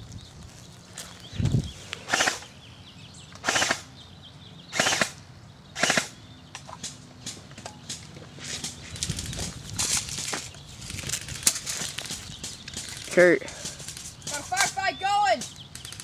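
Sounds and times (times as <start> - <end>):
airsoft guns rapid-fire bursts: 2.1 - 2.4, 3.4 - 3.8, 4.7 - 5.2, 5.8 - 6.1.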